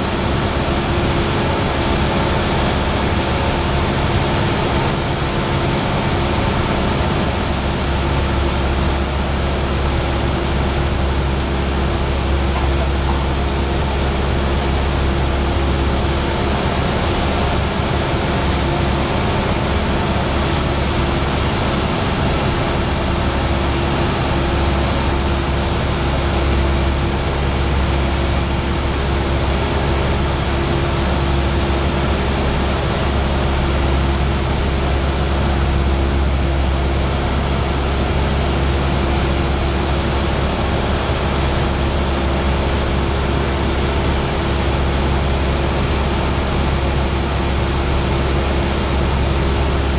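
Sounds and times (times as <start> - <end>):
airplane engine droning in cabin: 0.0 - 49.9.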